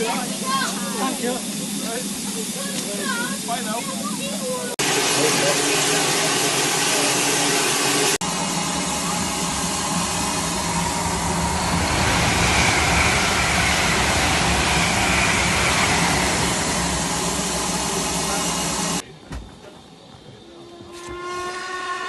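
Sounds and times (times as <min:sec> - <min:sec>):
steam hissing: 0:00.0 - 0:19.0
locomotive low rumble: 0:08.0 - 0:21.7.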